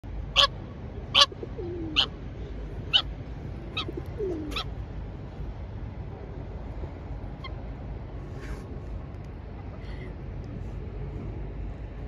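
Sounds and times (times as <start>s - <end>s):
pigeons cooing: 1.1s - 2.2s, 3.7s - 4.7s.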